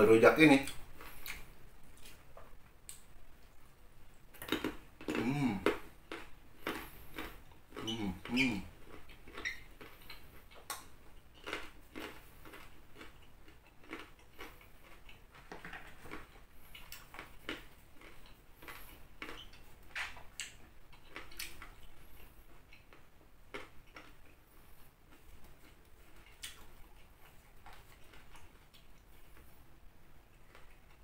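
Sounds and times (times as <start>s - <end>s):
carrot crunching: 4.3s - 24.4s.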